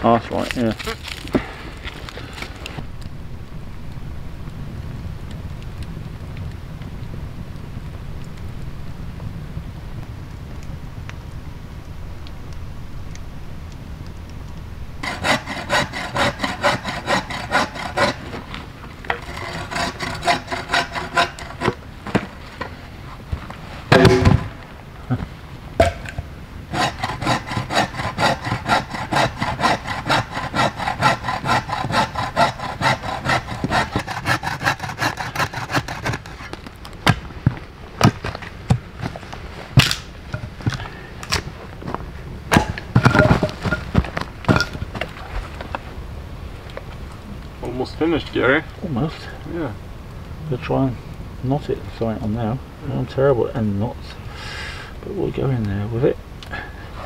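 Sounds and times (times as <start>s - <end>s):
hand saw cutting wood: 15.0s - 18.5s, 19.1s - 22.2s, 26.7s - 36.6s
sharp knocks: 23.9s - 24.5s, 42.5s - 44.8s
heavy thump: 23.9s - 24.6s.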